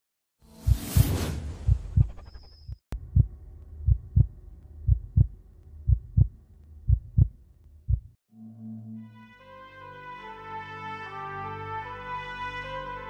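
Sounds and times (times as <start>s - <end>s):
whoosh: 0.5s - 2.8s
heartbeat thumps: 0.6s - 8.2s.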